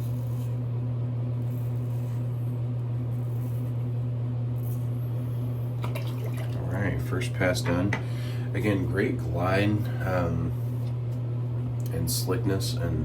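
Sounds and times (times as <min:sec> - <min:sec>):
razor scraping stubble: 0:00.0 - 0:05.5
low electrical hum: 0:00.0 - 0:13.0.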